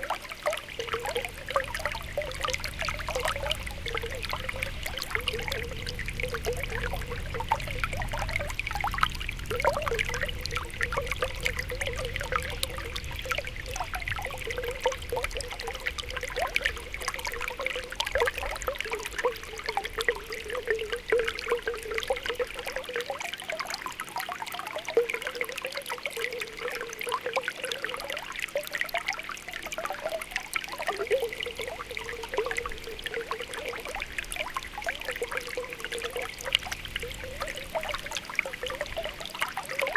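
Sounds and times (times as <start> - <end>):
spring water bubbling: 0.0 - 39.9
water trickling: 0.0 - 39.9.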